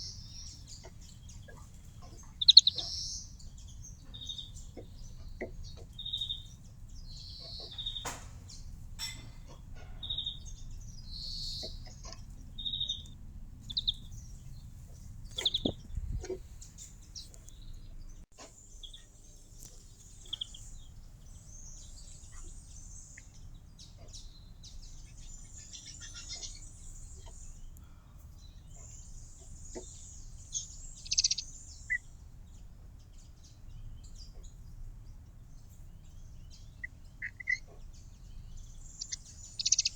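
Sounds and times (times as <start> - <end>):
low background hiss: 0.0 - 9.4, 10.0 - 39.9
small birds chirping: 0.0 - 39.9.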